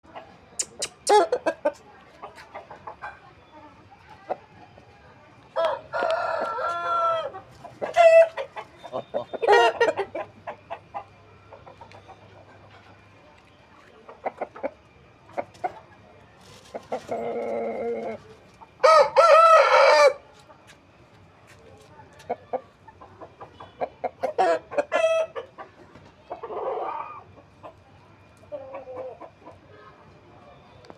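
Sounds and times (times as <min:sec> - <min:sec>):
chickens clucking: 0:00.0 - 0:30.9
rooster crowing: 0:05.6 - 0:07.3, 0:18.8 - 0:20.2.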